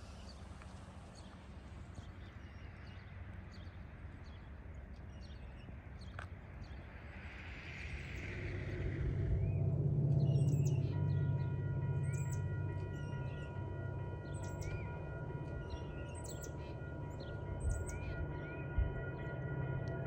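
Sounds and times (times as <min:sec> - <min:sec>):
low steady rumble: 0:06.4 - 0:20.0
steady high tone: 0:07.6 - 0:20.0.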